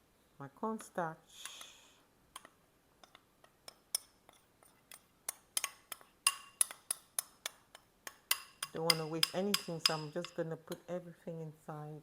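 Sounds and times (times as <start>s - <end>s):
spoon clinking against bowl: 5.3s - 10.8s.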